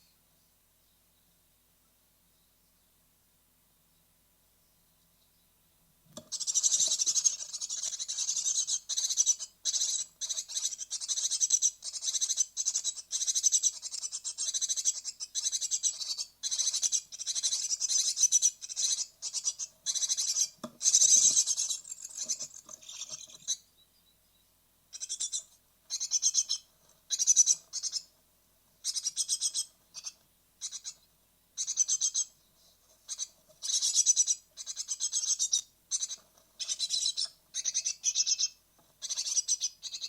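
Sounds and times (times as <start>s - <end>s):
nestlings calling chorus: 6.2s - 28.2s, 28.8s - 32.4s, 33.0s - 40.0s.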